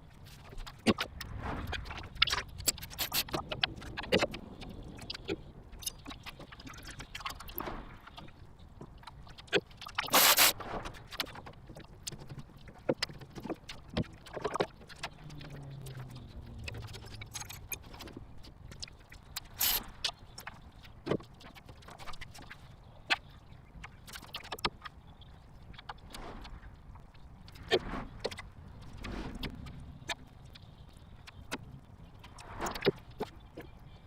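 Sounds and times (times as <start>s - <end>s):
loud rasping burst: 10.1s - 10.5s.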